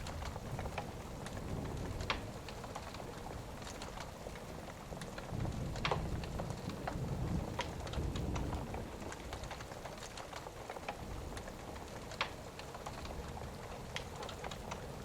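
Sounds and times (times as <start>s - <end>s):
distant thunder rolling: 0.0s - 15.0s
steady rain: 0.0s - 15.0s
wood fire crackling: 0.0s - 15.0s.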